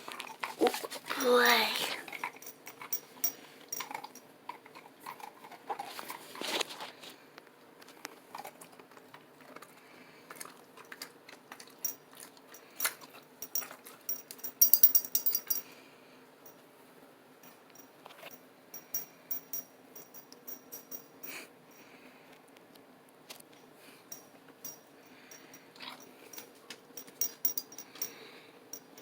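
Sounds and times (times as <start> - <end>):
puppy scuffling and rustling: 0.0 - 1.4, 5.8 - 7.2
metallic jingle: 2.2 - 4.2, 12.8 - 15.7, 17.4 - 21.9, 24.1 - 29.0.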